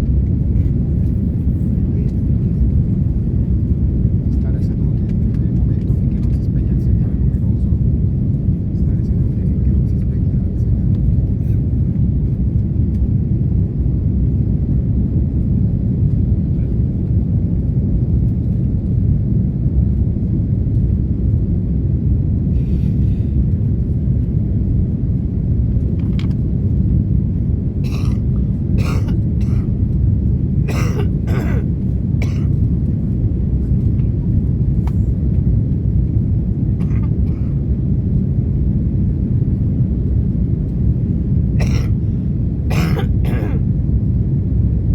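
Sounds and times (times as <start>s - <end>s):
airliner cabin engine rumble: 0.0s - 44.9s
people coughing: 27.8s - 29.7s, 30.7s - 32.6s, 36.8s - 37.5s, 41.6s - 42.0s, 42.7s - 43.6s.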